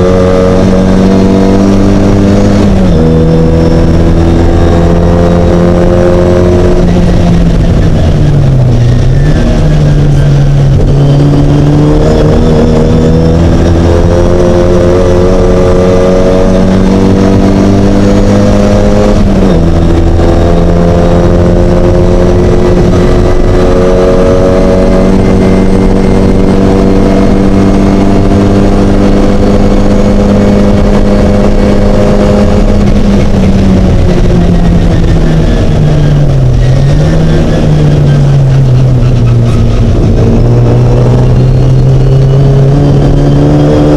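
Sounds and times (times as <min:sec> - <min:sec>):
race car engine at full throttle: 0:00.0 - 0:43.9.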